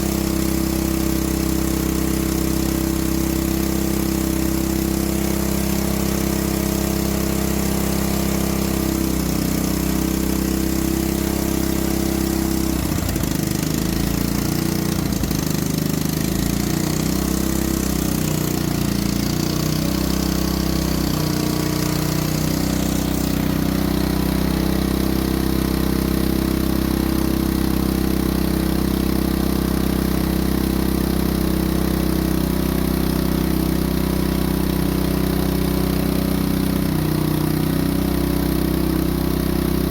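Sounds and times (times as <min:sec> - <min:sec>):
small engine idling: 0:00.0 - 0:39.9.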